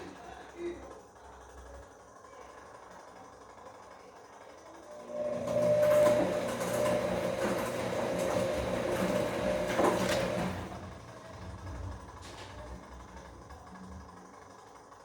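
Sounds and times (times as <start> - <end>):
washing machine motor whining: 2.8 - 15.0
churning laundry load: 5.0 - 13.5.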